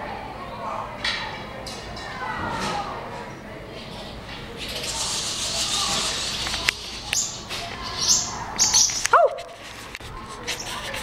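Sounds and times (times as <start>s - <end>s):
nestling birds chirping: 4.5s - 9.5s.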